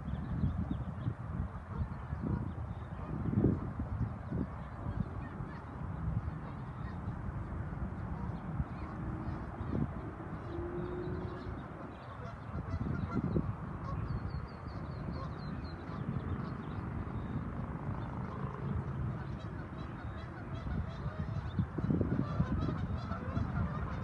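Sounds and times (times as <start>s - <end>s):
geese honking: 10.4s - 14.1s, 19.1s - 24.0s.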